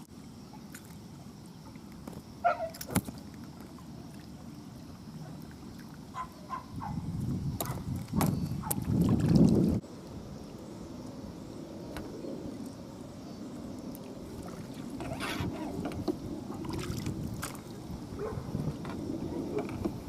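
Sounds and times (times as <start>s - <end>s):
water lapping at bank: 0.0s - 10.1s, 13.5s - 20.0s
wind buffeting microphone: 6.1s - 20.0s.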